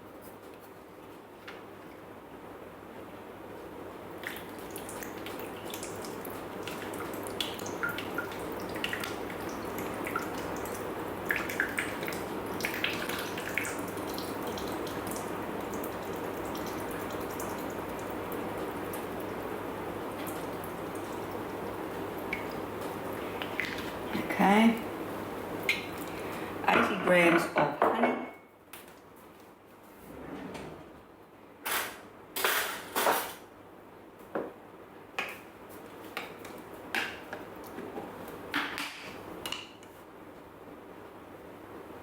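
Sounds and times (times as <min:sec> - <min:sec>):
liquid drips and splashes: 0:04.2 - 0:24.3, 0:25.6 - 0:26.5.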